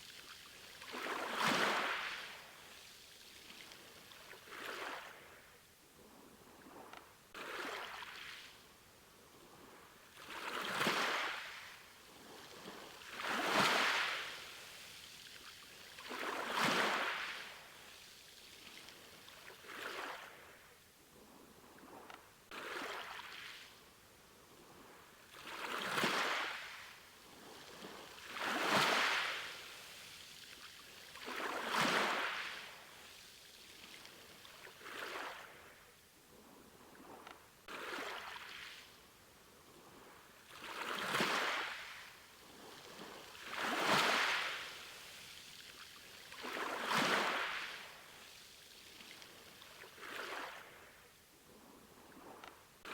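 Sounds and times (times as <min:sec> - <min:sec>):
sea waves breaking on shore: 0:25.4 - 0:33.2, 0:40.2 - 0:48.4.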